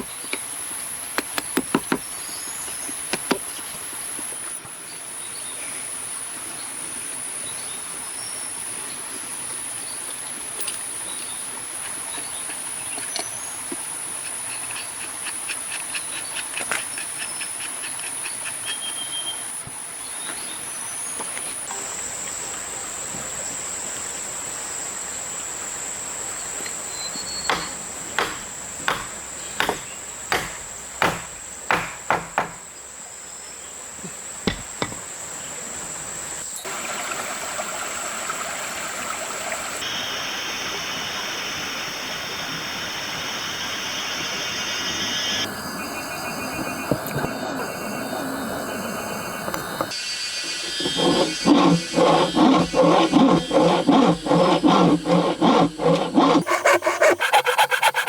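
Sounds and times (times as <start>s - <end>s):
sharp knocks: 1.2s - 2.1s, 3.1s - 3.5s, 27.5s - 32.6s.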